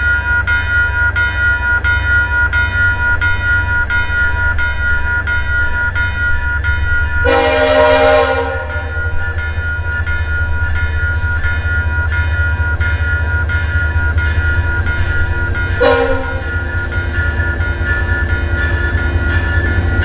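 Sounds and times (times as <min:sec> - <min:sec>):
bell ringing: 0:00.0 - 0:20.0
train rumbling past: 0:00.0 - 0:20.0
locomotive horn blast: 0:07.2 - 0:09.0, 0:15.8 - 0:16.9.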